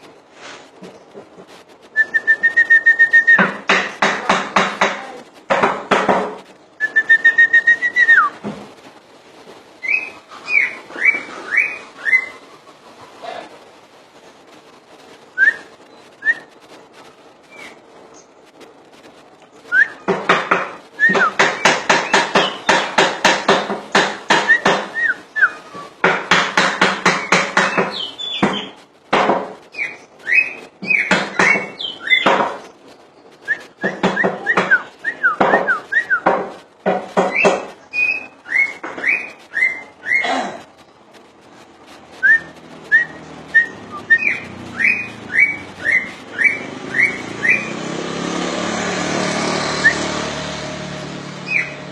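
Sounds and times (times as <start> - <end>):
bird singing whistled notes: 1.9 - 3.7, 6.8 - 8.4, 9.8 - 12.4, 15.3 - 16.6, 17.5 - 18.3, 19.6 - 20.1, 21.0 - 22.8, 24.3 - 25.8, 27.1 - 28.8, 29.7 - 36.3, 37.3 - 40.2, 42.2 - 47.8, 51.4 - 51.8.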